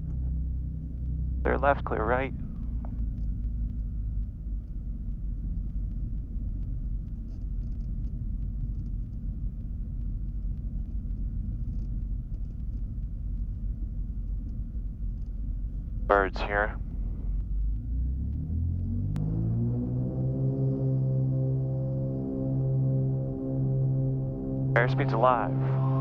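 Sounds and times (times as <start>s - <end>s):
aircraft piston engines droning: 16.1s - 17.2s, 20.4s - 26.0s.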